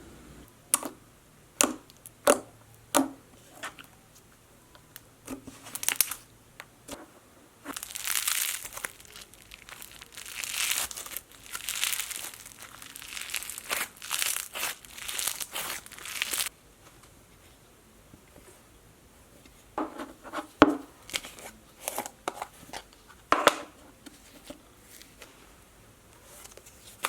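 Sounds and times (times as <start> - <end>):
slime crinkling and crackling: 5.5 - 6.2, 7.7 - 16.5.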